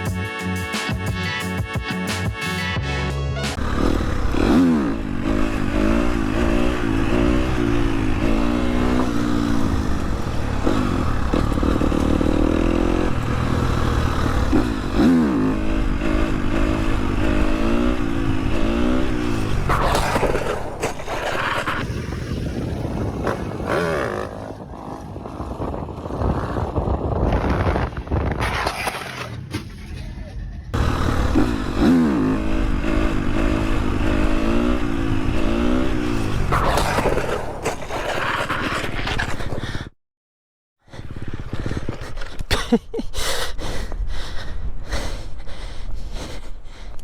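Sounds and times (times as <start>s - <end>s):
motorcycle engine accelerating: 0.0s - 29.6s, 30.7s - 39.4s
steady rush noise: 3.4s - 28.1s, 30.7s - 37.6s.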